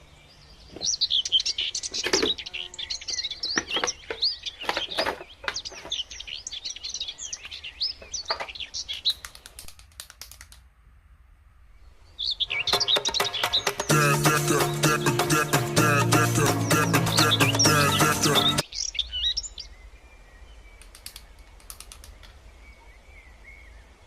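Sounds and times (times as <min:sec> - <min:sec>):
birds chirping: 0:00.0 - 0:09.8, 0:11.8 - 0:24.0
sharp clicks and taps: 0:09.1 - 0:10.7.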